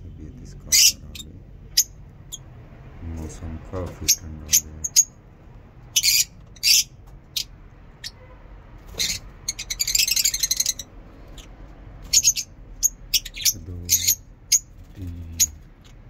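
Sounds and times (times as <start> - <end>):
cage birds chirping: 0.0 - 16.0.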